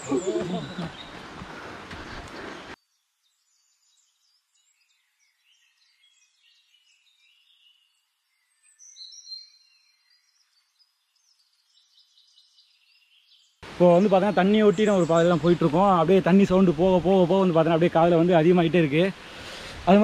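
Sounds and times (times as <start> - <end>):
forest birdsong: 0.0 - 20.0.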